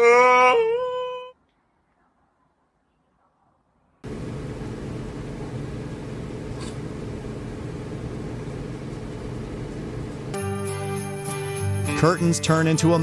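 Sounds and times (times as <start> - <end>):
mechanical hum and rumble: 1.4 - 10.4
jingling music: 10.4 - 13.0.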